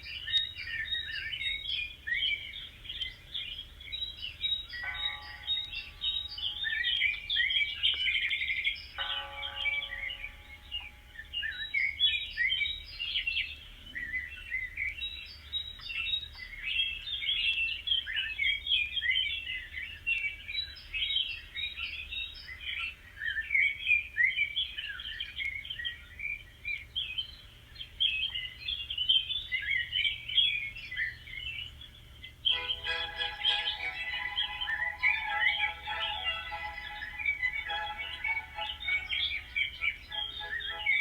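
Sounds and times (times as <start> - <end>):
small birds chirping: 27.2 - 41.0.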